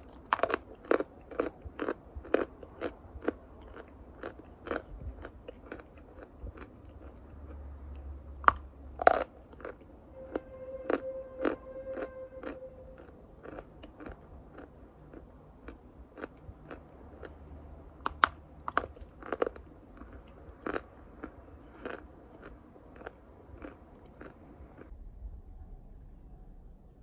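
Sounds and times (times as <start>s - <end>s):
chalk being chewed: 8.5s - 17.4s, 18.0s - 24.9s.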